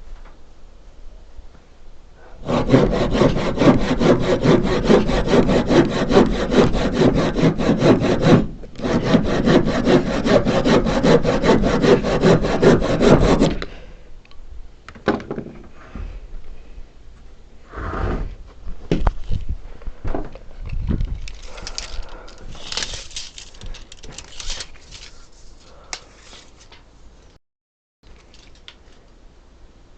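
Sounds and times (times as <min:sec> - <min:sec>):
handsaw cutting wood: 0:02.4 - 0:13.6.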